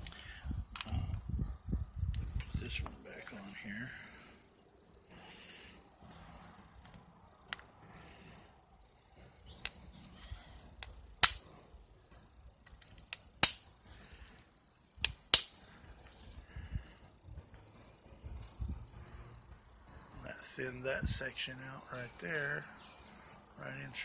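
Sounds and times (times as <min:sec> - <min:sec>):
stone cracking sharply: 0:11.2 - 0:11.4, 0:13.0 - 0:13.7, 0:15.0 - 0:15.6
striker tapping stone: 0:11.2 - 0:11.4, 0:13.4 - 0:13.6, 0:15.0 - 0:15.6.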